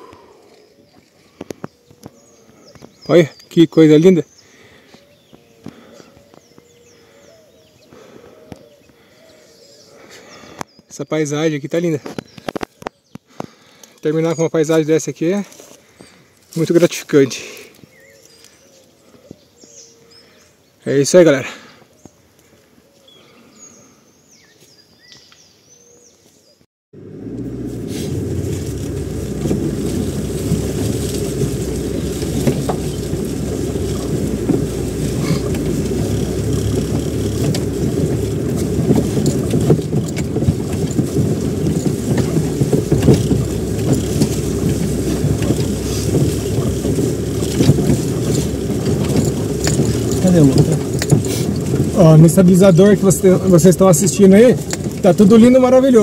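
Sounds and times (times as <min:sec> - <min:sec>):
car driving on dirt road: 0:00.0 - 0:10.6, 0:27.0 - 0:56.0
faint birds chirping: 0:00.0 - 0:56.0
knocks and rattles: 0:27.3 - 0:56.0.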